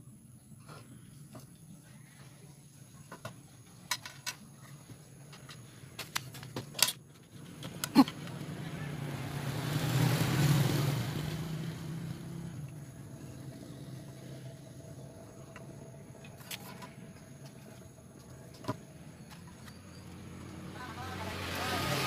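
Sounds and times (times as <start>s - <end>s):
motor vehicle passing by: 7.3s - 22.0s
faint steady hum: 11.8s - 21.4s.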